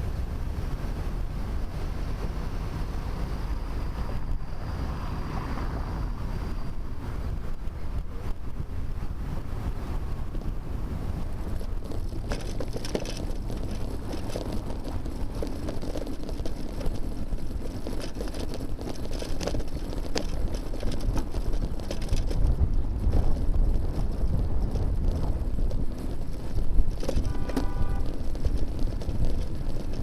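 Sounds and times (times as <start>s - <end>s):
wind buffeting microphone: 0.0s - 30.0s
bicycle clicks and rattles: 7.2s - 30.0s.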